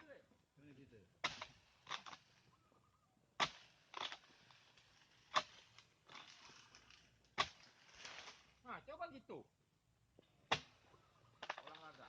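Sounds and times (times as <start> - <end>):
chisel chopping into palm: 1.2 - 2.2, 3.4 - 4.2, 7.4 - 8.4, 10.5 - 10.8
rustling scrapes: 3.5 - 8.6.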